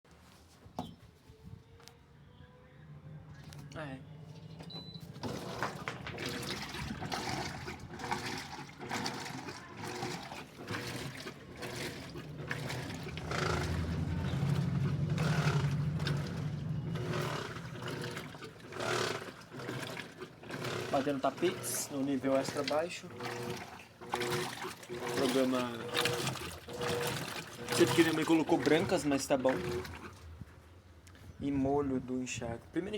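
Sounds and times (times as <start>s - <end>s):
low motor hum: 2.2s - 30.7s
water sloshing in washing machine: 4.7s - 30.6s.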